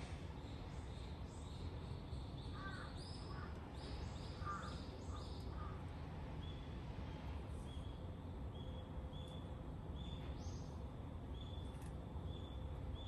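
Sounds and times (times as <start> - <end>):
lower rough bird calls: 4.3 - 5.8.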